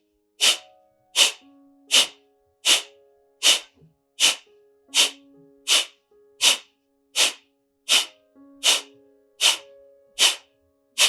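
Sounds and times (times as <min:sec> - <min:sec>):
forceful nasal exhalations: 0:00.4 - 0:00.6, 0:01.2 - 0:06.6, 0:07.2 - 0:09.6, 0:10.2 - 0:10.4.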